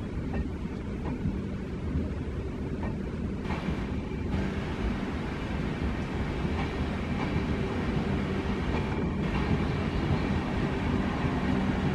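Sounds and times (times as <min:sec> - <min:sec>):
train coaches rumbling on rails: 0:00.0 - 0:11.9.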